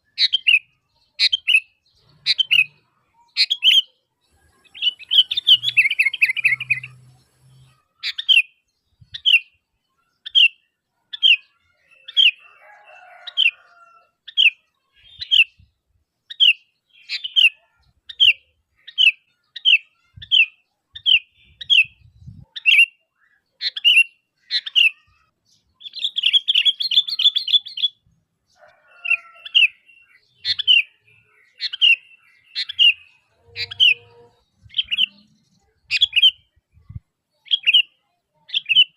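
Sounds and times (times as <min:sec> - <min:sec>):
bird chattering: 0:00.2 - 0:08.5, 0:30.4 - 0:36.4
bulbul calling: 0:00.2 - 0:09.5, 0:29.2 - 0:37.9.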